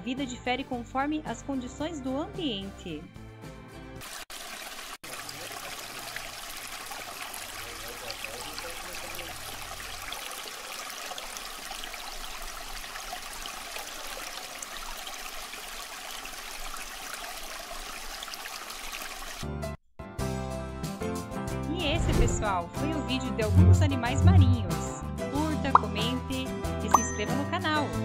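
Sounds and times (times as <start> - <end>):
running water: 4.0 - 19.5.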